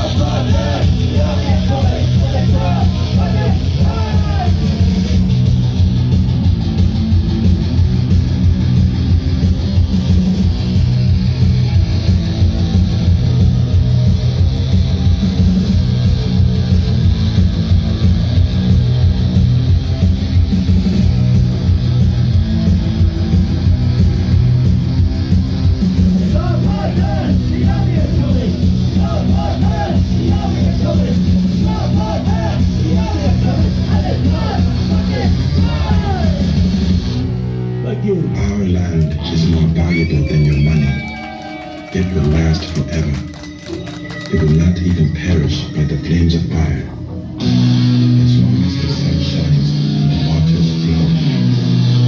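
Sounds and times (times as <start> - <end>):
steady drums: 0.0 - 43.4
bass guitar: 0.0 - 52.0.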